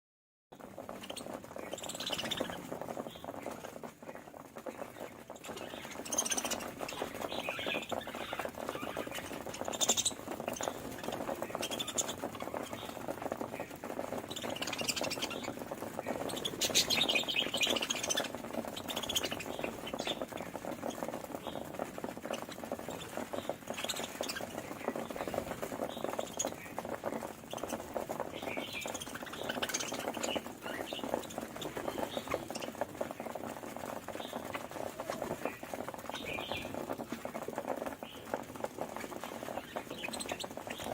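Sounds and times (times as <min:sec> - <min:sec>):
budgerigars chattering: 0:05.5 - 0:13.0, 0:14.3 - 0:21.6, 0:34.2 - 0:36.7.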